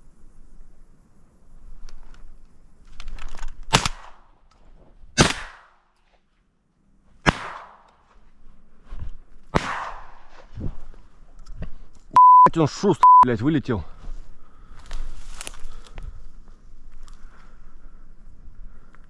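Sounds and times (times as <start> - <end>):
shotgun shots: 3.7 - 4.3, 5.2 - 5.8, 7.2 - 7.8, 9.5 - 10.2.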